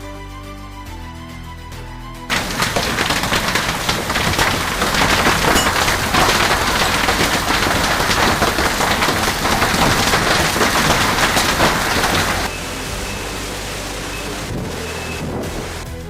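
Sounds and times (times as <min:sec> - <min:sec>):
heavy rain on a hard surface: 0:02.3 - 0:16.0.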